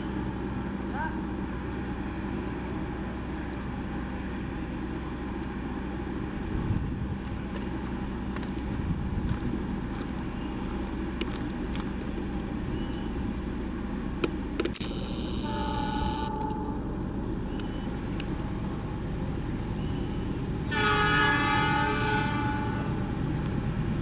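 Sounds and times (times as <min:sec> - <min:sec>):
diesel engine rumbling: 0:00.0 - 0:24.0
sharp clicks: 0:14.2 - 0:16.8.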